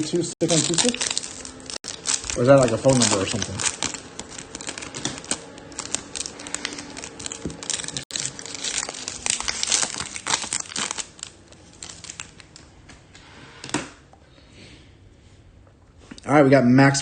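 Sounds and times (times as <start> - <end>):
wrapper tearing and crinkling: 0.0 - 12.6.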